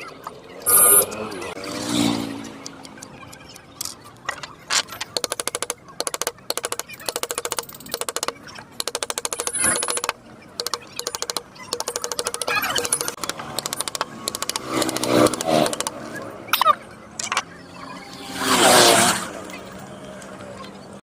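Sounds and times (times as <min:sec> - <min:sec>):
carving tool tapping on wood: 0:05.2 - 0:15.9.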